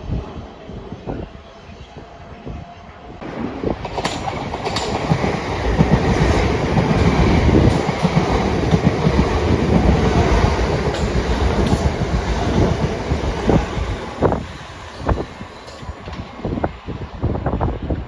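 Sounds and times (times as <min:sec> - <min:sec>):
train passing close by: 0:00.0 - 0:18.0
wheels clicking over rail joints: 0:03.8 - 0:17.0.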